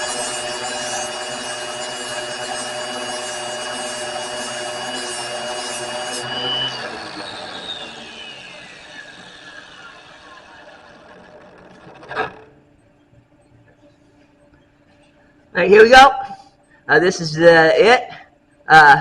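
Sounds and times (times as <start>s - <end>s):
grinder grinding steel: 0.0s - 12.7s
grinder motor spinning down: 0.0s - 12.7s.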